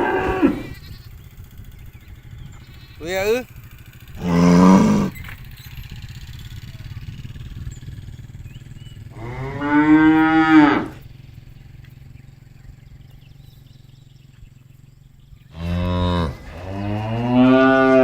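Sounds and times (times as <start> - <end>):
cows mooing: 0.0 - 1.2, 4.1 - 5.4, 9.0 - 11.1, 15.5 - 18.0
steady low hum: 0.0 - 18.0.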